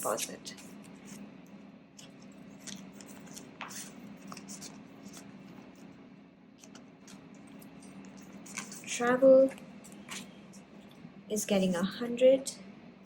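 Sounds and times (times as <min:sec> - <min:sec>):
paper rustling: 0:00.1 - 0:01.3, 0:02.0 - 0:05.9, 0:06.6 - 0:10.3
pen scratching on paper: 0:02.0 - 0:05.2, 0:06.6 - 0:09.1.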